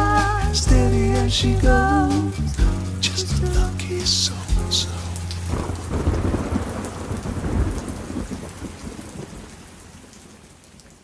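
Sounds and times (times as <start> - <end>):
steady rain: 0.0 - 11.0
thunder rumbling: 4.6 - 9.5.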